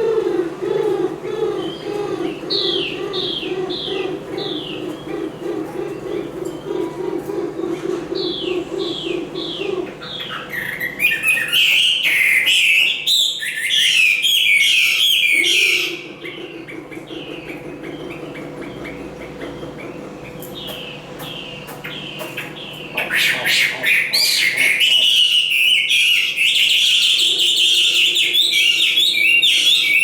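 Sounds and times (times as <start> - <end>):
songbird whistling and singing: 8.3 - 16.0, 17.0 - 30.0.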